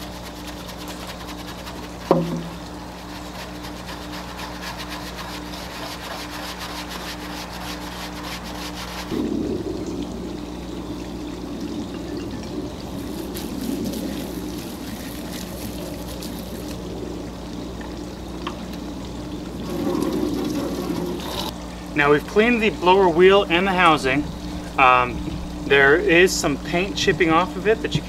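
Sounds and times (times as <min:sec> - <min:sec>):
brush scrubbing metal: 0:00.0 - 0:09.1, 0:13.0 - 0:16.8, 0:19.6 - 0:21.5
sharp knock: 0:02.1 - 0:02.6.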